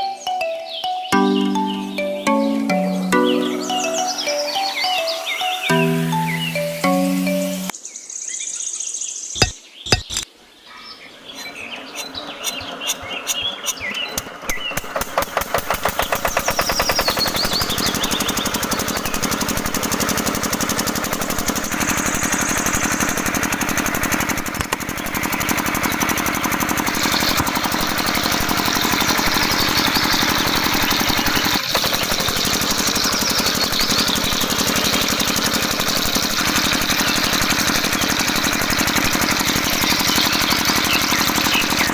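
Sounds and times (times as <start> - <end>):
small engine starting and running: 1.1 - 7.7, 12.0 - 41.9
sharp knocks: 9.4 - 10.2.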